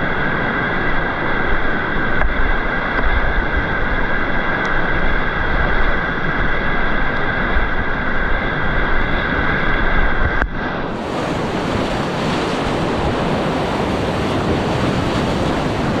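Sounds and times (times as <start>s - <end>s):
whitewater rushing: 0.0s - 16.0s
wind buffeting microphone: 0.0s - 16.0s.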